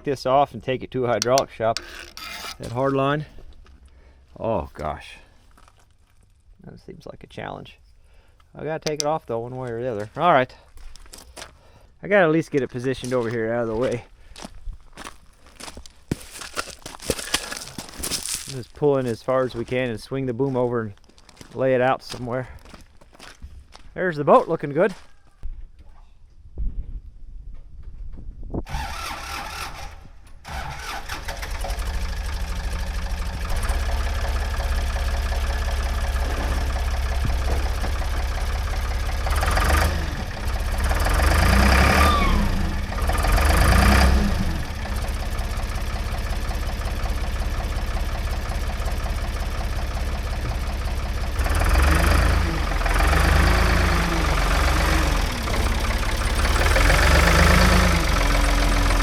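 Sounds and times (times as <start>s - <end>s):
diesel engine starting and running: 0.0s - 6.5s, 28.6s - 59.0s
engine revving: 28.7s - 59.0s.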